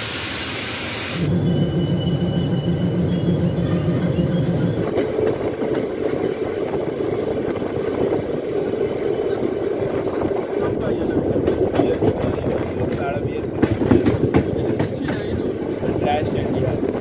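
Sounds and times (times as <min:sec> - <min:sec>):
low hum: 0:01.2 - 0:05.0
train wheels rumbling: 0:01.2 - 0:17.0
faint high squeal: 0:01.3 - 0:04.9.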